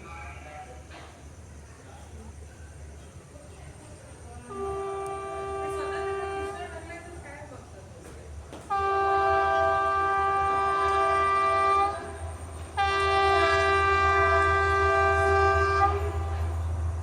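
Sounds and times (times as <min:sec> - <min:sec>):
train rumbling: 0:00.0 - 0:17.0
train horn blasts: 0:04.5 - 0:06.9, 0:08.6 - 0:17.0.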